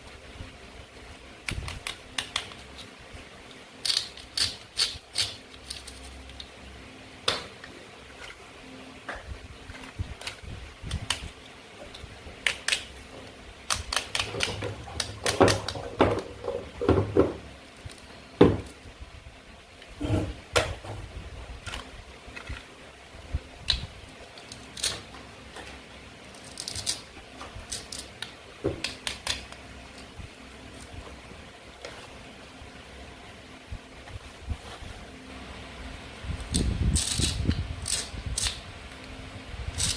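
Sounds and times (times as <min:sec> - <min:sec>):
toy food clicking and tapping: 0:03.8 - 0:06.0, 0:13.7 - 0:15.8.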